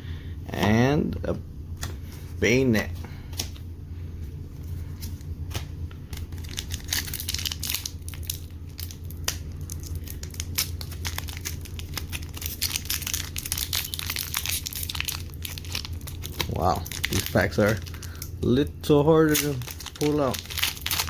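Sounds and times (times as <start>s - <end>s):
steady low hum: 0.0s - 21.0s
foil wrapper crinkling and tearing: 6.1s - 21.0s.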